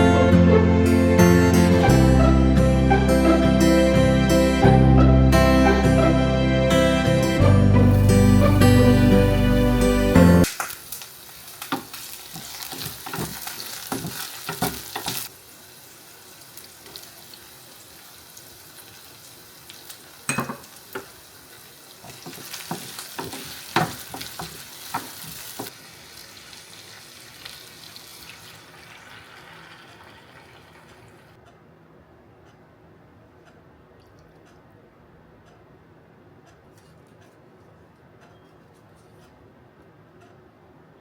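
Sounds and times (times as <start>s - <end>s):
food sizzling in a frying pan: 7.8s - 31.3s
utensil clinking in a pan: 20.3s - 21.1s.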